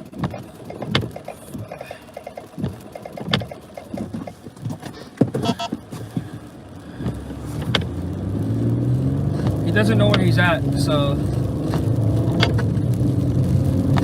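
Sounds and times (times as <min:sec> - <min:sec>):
vehicle cabin noise: 0:00.0 - 0:14.0
sharp clicks: 0:00.1 - 0:04.9
deep engine hum: 0:05.4 - 0:14.0.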